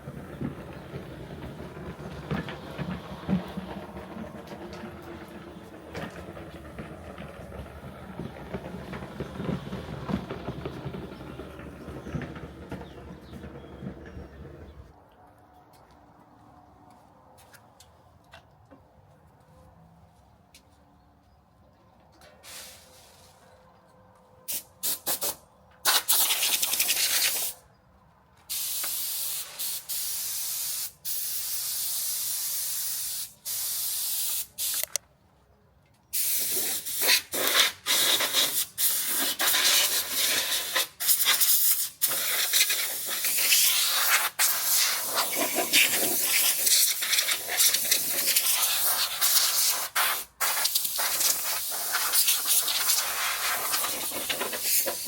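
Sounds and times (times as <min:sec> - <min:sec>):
hissing spray: 0:24.5 - 0:27.6, 0:28.5 - 0:35.0, 0:36.2 - 0:55.0.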